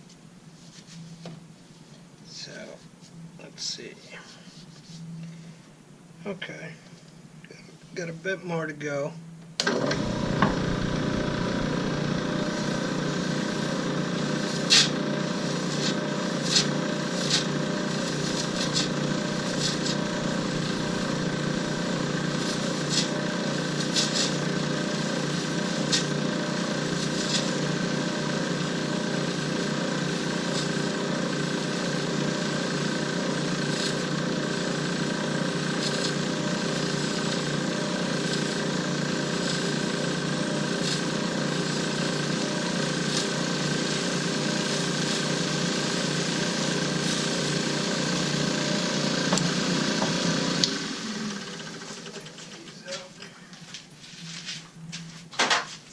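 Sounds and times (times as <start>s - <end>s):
power tool motor running: 9.6s - 52.7s.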